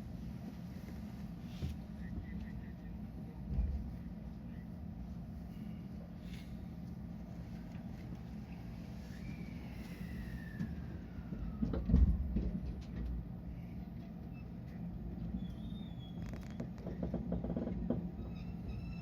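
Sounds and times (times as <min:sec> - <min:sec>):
electric train humming: 0:01.9 - 0:15.4.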